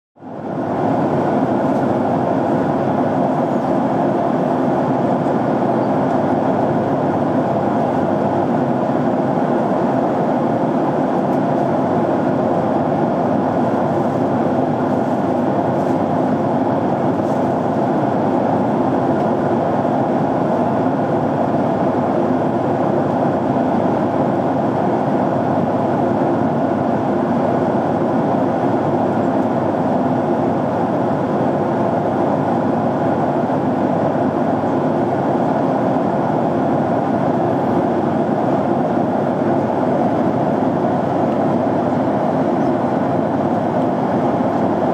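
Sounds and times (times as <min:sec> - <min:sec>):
airliner cabin engine hum: 0:00.2 - 0:44.9.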